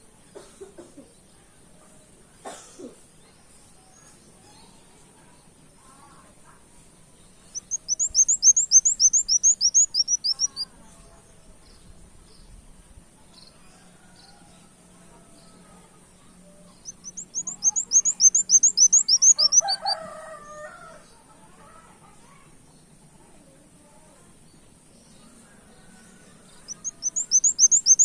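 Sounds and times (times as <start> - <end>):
faint bird chirps: 7.3 - 12.6, 15.2 - 20.4, 24.9 - 28.0
rooster crowing: 19.0 - 21.1.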